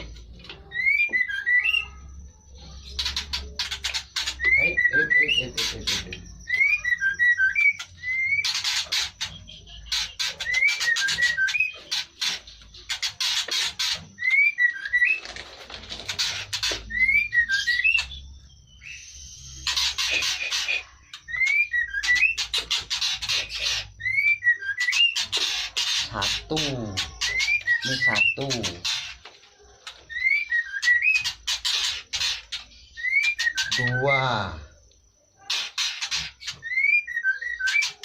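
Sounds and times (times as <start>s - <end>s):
bird whistling: 0.0s - 2.1s, 2.8s - 15.3s, 16.2s - 29.1s, 30.1s - 34.5s, 35.5s - 38.0s
rustling and scraping: 14.9s - 16.9s.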